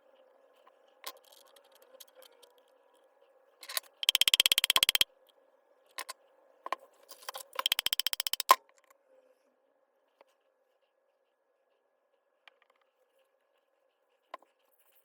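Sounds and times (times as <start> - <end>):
rapid mechanical clicking: 3.7 - 5.0, 7.4 - 8.6.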